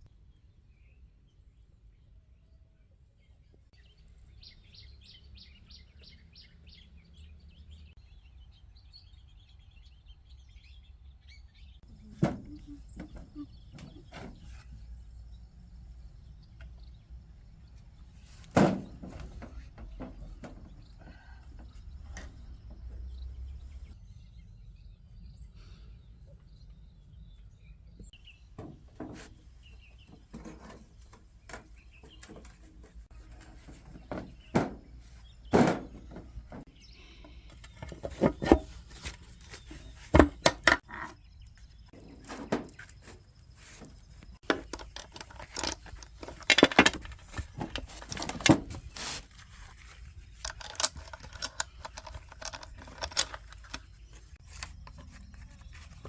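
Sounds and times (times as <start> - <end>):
hand tools knocking and clinking: 44.4 - 48.8, 50.4 - 53.8.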